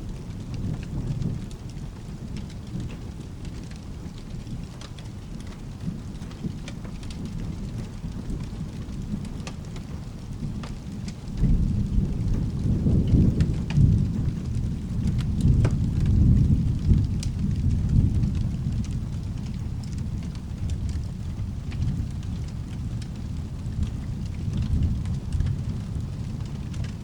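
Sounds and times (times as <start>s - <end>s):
steady rain: 0.0s - 27.0s
rolling thunder: 10.8s - 27.0s.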